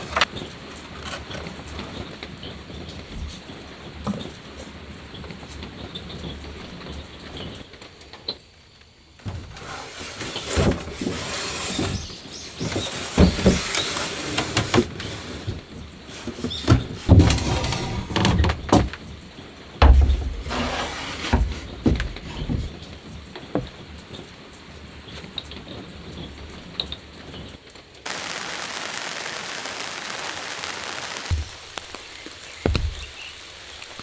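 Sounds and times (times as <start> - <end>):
knocks and thuds: 32.6 - 33.4.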